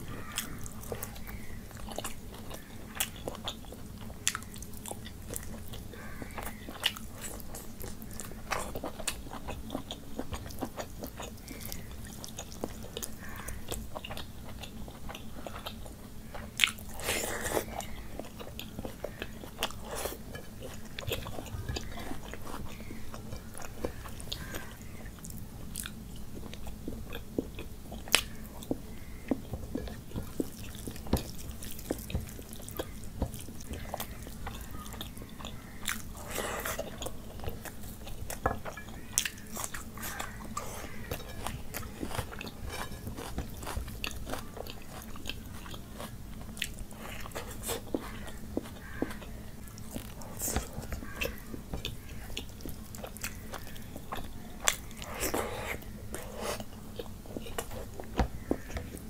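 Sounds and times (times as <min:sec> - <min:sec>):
fingers mixing rice on plate: 0:28.1 - 0:59.0.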